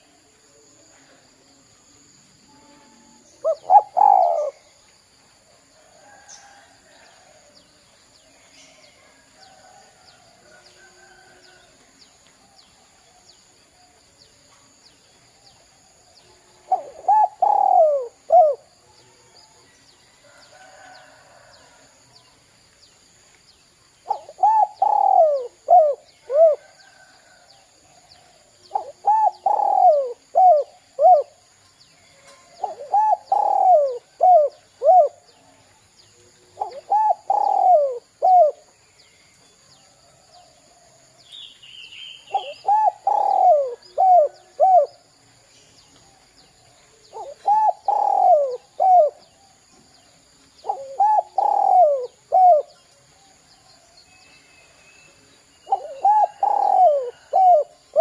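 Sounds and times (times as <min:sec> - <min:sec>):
dove cooing: 0:03.4 - 0:04.8, 0:16.6 - 0:18.7, 0:24.0 - 0:27.3, 0:28.0 - 0:31.4, 0:32.2 - 0:35.3, 0:36.4 - 0:38.7, 0:42.3 - 0:45.0, 0:47.1 - 0:49.2, 0:50.6 - 0:52.8, 0:55.7 - 0:58.0.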